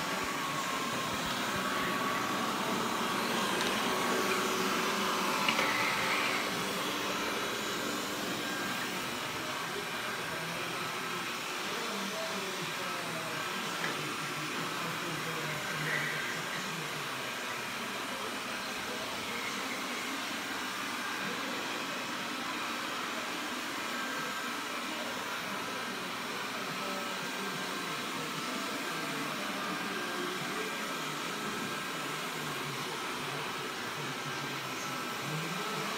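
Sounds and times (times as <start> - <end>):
robot vacuum whirring: 0.0 - 11.9.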